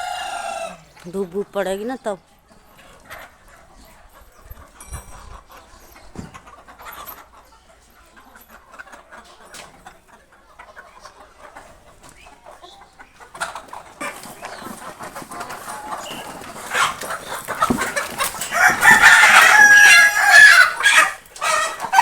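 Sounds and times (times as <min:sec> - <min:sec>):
chickens clucking: 0:00.0 - 0:22.0
scratching and pecking: 0:10.6 - 0:22.0.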